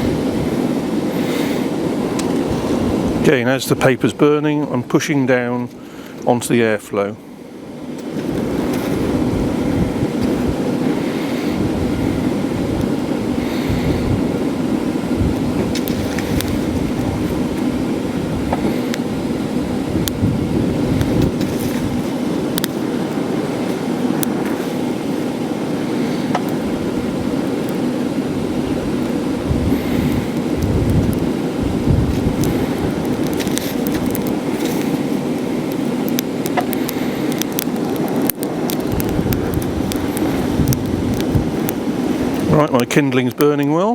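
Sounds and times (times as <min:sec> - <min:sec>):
air rushing through fire: 0:00.0 - 0:43.6
wind buffeting microphone: 0:00.0 - 0:43.6
fire crackling: 0:00.0 - 0:43.9
forge blower fan humming: 0:00.0 - 0:43.9
paper and kindling crackling: 0:32.0 - 0:42.8.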